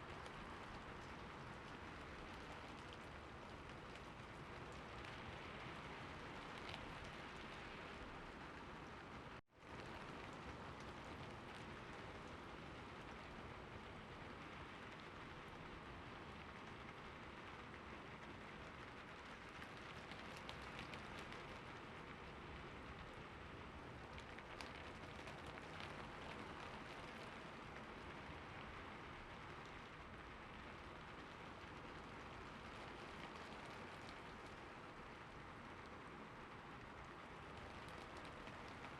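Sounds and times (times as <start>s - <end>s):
rain pattering: 0.0s - 38.9s
raindrops ticking: 18.2s - 23.2s, 23.8s - 38.9s.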